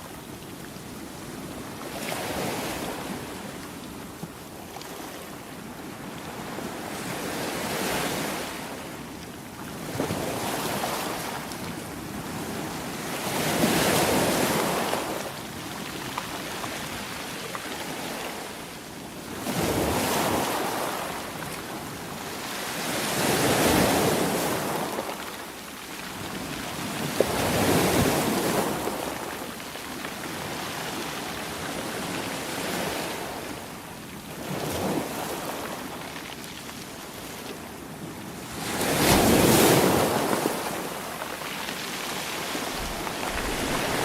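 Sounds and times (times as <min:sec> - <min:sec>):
sea waves breaking: 0:38.4 - 0:44.0.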